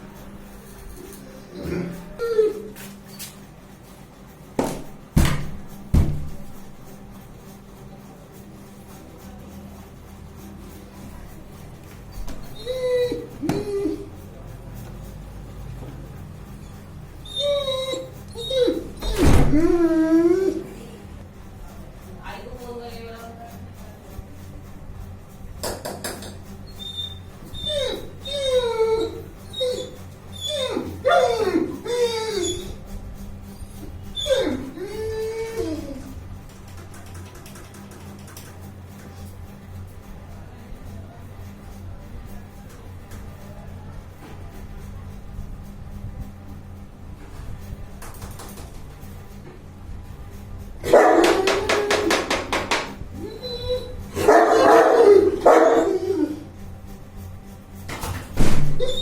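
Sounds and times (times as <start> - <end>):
dog whimpering: 1.5 - 2.8, 12.2 - 14.2, 17.2 - 20.9, 26.7 - 32.8, 34.1 - 36.1, 53.2 - 56.5, 58.8 - 59.0.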